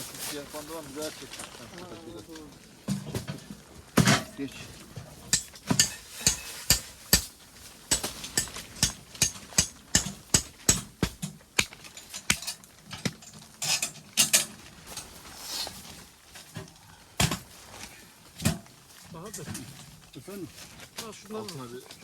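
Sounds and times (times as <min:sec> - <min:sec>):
hammer strikes: 0:05.3 - 0:07.3, 0:07.9 - 0:13.2.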